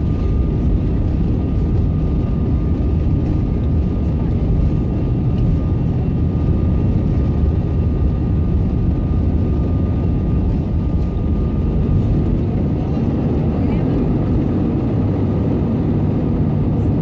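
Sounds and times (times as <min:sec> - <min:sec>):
aircraft cabin engine rumble: 0:00.0 - 0:17.0.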